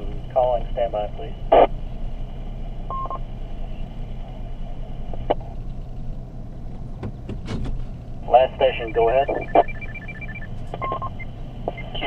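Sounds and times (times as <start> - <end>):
vehicle idling hum: 0.0 - 12.0
radio beep: 2.9 - 3.2, 8.3 - 12.0.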